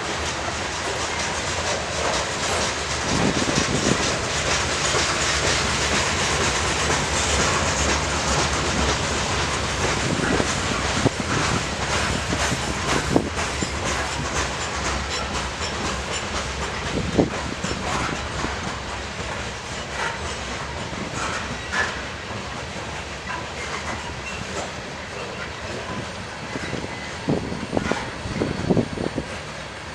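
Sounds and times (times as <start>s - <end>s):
railroad wheels rumbling: 0.0s - 29.9s
wheels clacking over rail joints: 0.1s - 29.5s.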